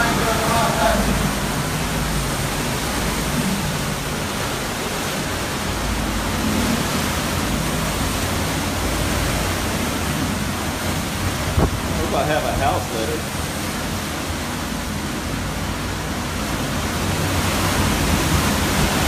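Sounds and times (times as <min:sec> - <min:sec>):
strong wind blowing: 0:00.0 - 0:13.1.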